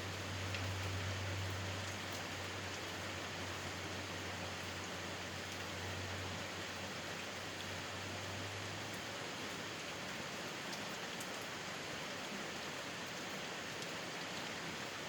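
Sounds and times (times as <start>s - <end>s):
steady rain falling: 0.0s - 15.0s
faint drip ticks: 0.3s - 3.0s, 8.4s - 11.6s.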